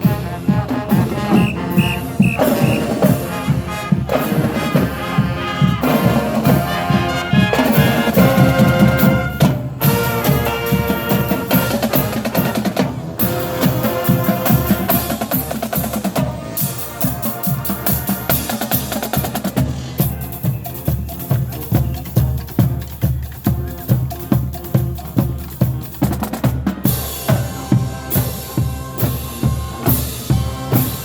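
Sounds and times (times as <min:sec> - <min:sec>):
marching band playing: 0:00.0 - 0:31.0
drum beat: 0:00.9 - 0:12.9.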